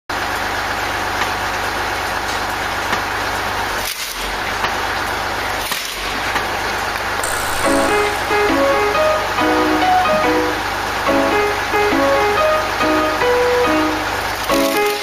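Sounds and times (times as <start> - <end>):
wood-cutting machine running: 7.0 - 11.1.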